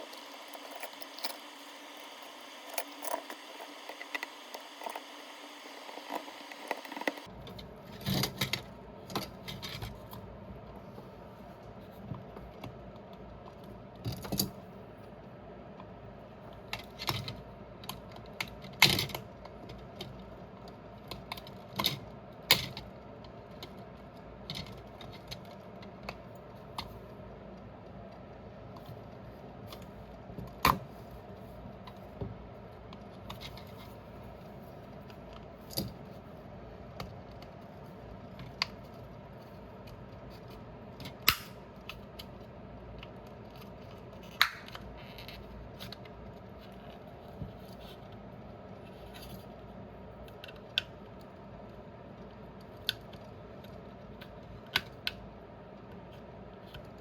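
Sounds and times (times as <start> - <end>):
steady hum: 0.0 - 7.8.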